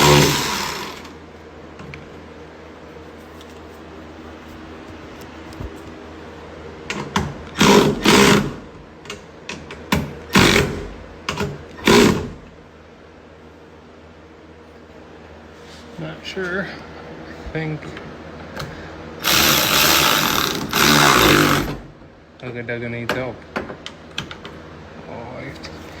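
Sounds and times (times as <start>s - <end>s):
handheld power tool bursts: 0.0s - 1.1s, 19.2s - 21.8s
steady low hum: 0.0s - 26.0s.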